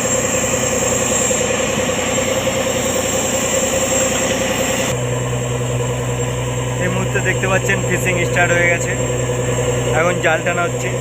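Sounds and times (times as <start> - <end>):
rushing noise: 0.0 - 5.1
boat engine humming: 0.0 - 11.0.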